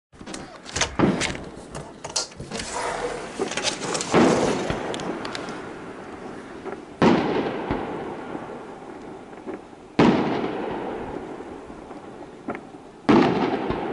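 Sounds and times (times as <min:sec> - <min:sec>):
window sliding open: 0:00.2 - 0:05.0.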